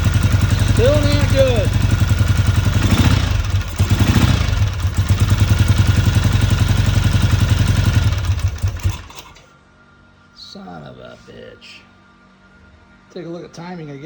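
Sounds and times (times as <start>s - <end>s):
motorcycle engine running roughly: 0.0s - 9.4s.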